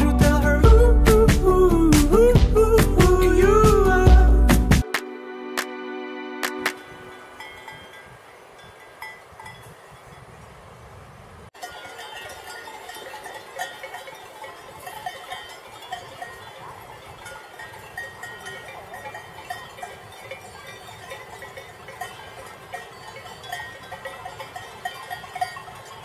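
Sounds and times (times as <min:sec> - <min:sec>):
livestock bells clanking: 0:06.8 - 0:10.3, 0:11.6 - 0:26.0.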